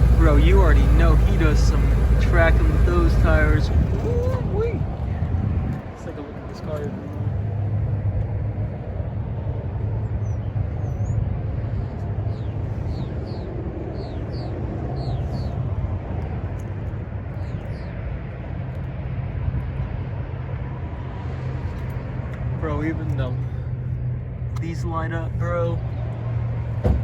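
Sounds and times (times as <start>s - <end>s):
car engine idling: 0.0s - 4.7s
birds chirping: 0.0s - 5.2s, 10.1s - 18.4s.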